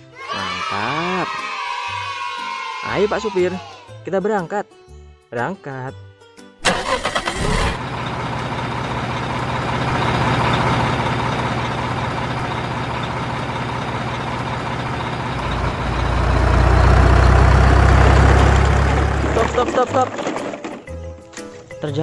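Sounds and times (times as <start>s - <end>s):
truck engine rumbling: 6.6s - 21.7s.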